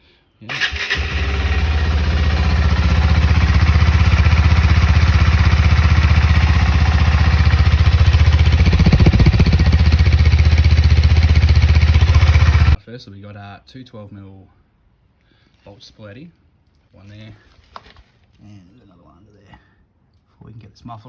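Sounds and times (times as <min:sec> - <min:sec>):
motorcycle engine idling: 0:00.5 - 0:12.8.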